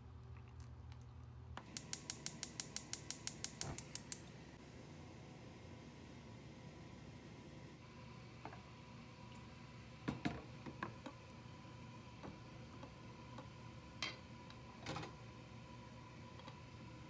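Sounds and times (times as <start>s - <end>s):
sharp kitchen taps and clicks: 1.7s - 4.3s.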